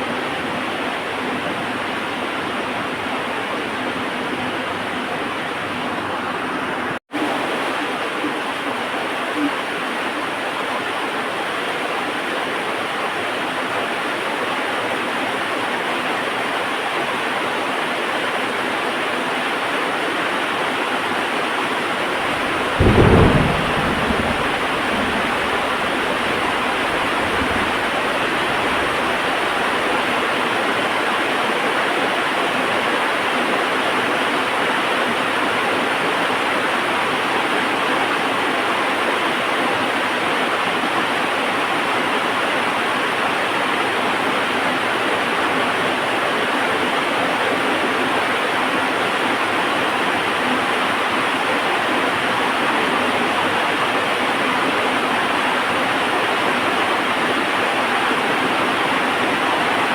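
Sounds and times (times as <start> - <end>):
heavy rain falling: 0.0 - 17.5, 18.4 - 59.9
thunder crack and rumble: 22.1 - 30.0.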